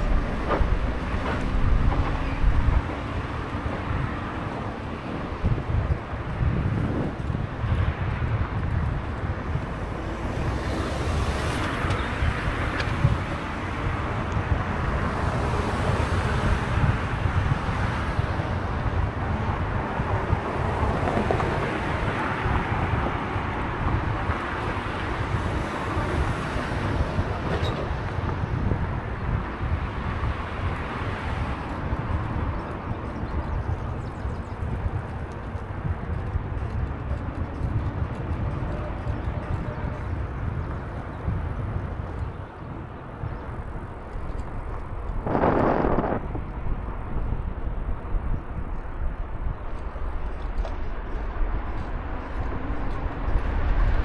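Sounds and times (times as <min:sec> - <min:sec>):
road and traffic noise: 0:00.0 - 0:54.0
wind buffeting microphone: 0:00.0 - 0:54.0.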